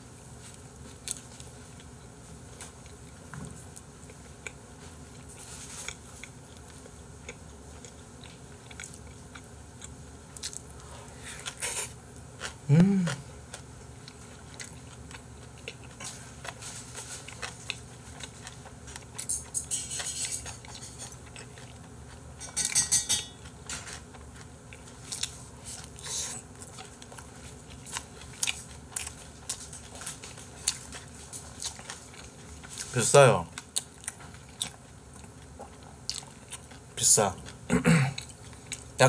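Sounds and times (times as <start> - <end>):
person chewing: 0.4 - 39.0.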